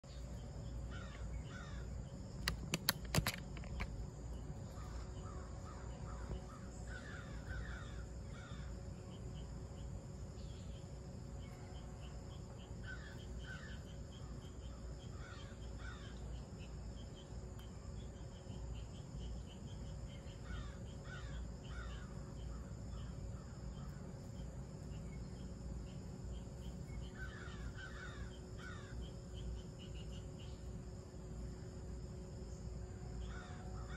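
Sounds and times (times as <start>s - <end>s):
bird calls: 0.1s - 3.9s, 4.6s - 9.4s, 10.4s - 17.3s, 18.0s - 30.7s
sharp clicks: 2.4s - 4.0s.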